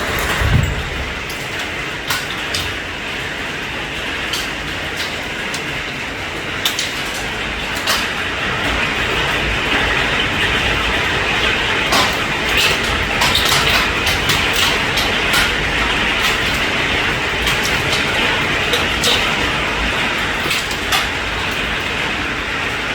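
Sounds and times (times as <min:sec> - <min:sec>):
heavy rain hissing: 0:00.0 - 0:04.3
hailstones striking hard surfaces: 0:00.0 - 0:22.6.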